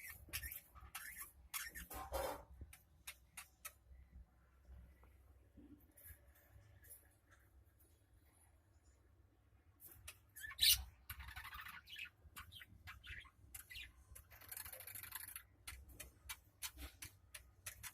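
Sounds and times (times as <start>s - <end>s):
budgerigar chirping and squawking: 0.0s - 3.8s, 10.1s - 17.9s.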